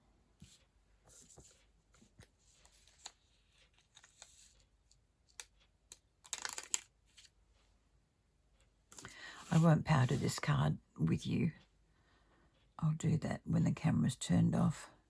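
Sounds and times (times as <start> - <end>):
paper rustling: 0.4 - 7.7.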